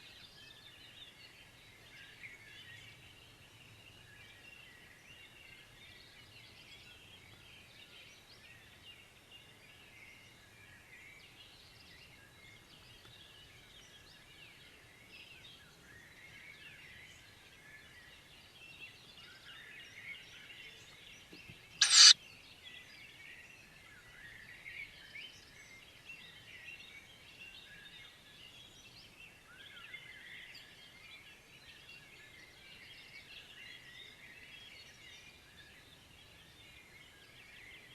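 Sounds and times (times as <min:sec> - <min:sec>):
loud harsh hissing burst: 0:21.8 - 0:22.1.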